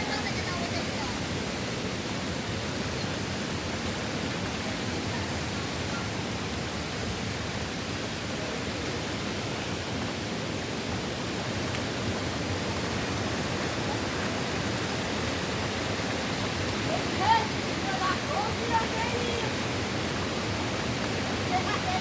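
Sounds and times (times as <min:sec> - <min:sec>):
hurricane wind and rain: 0:00.0 - 0:22.0.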